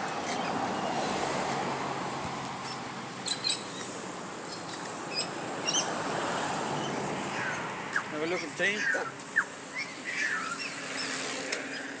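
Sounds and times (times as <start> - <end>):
outdoor background noise: 0.0 - 12.0
birds chirping: 6.8 - 11.9
sharp high bird calls: 6.8 - 11.9.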